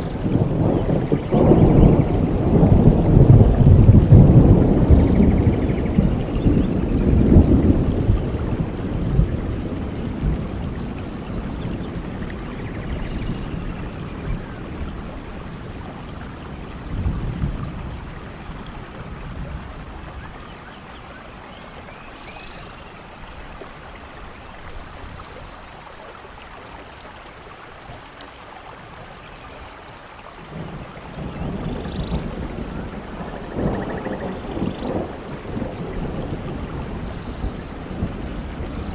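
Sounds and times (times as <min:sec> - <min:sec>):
thunder rolling: 0:00.0 - 0:15.6, 0:30.5 - 0:38.9
steady rain: 0:00.0 - 0:38.9.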